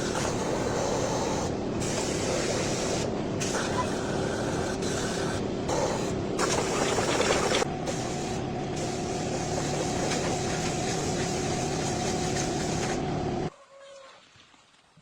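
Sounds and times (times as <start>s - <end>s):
machine humming: 5.7s - 13.5s.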